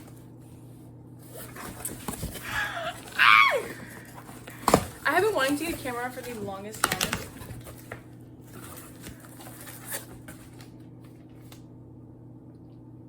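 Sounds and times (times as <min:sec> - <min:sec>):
steady low hum: 0:00.0 - 0:13.0
packaging rustling: 0:01.3 - 0:11.6.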